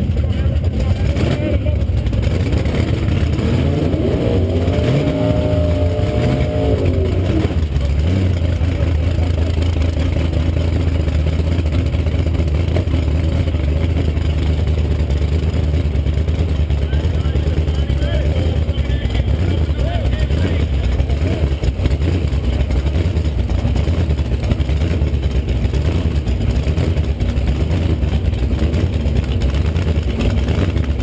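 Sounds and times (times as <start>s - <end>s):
car engine revving and idling: 0.0s - 31.0s.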